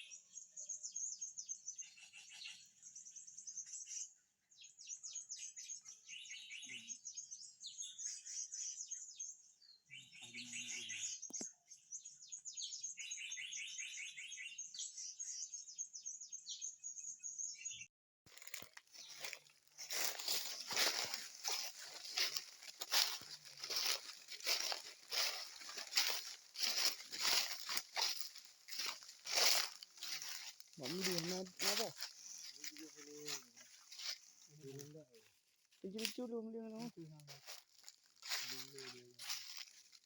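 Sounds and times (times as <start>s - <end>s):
small birds chirping and trilling: 0.0s - 40.0s
crunching and rustling: 18.3s - 36.2s, 36.8s - 40.0s.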